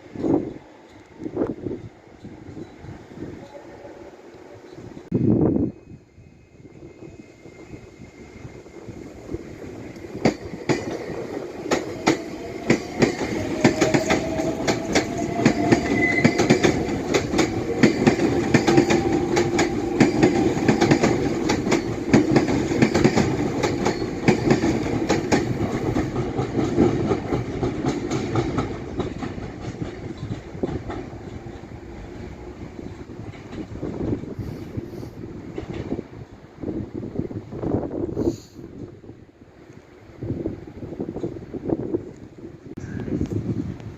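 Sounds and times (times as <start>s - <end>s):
train wheels clacking over rail joints: 9.9s - 31.7s.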